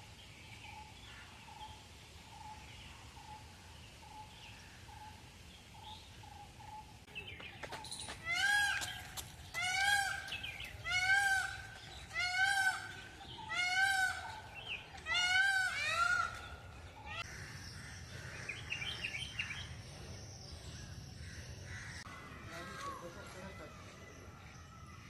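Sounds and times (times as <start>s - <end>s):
peacock calling: 7.7s - 19.8s.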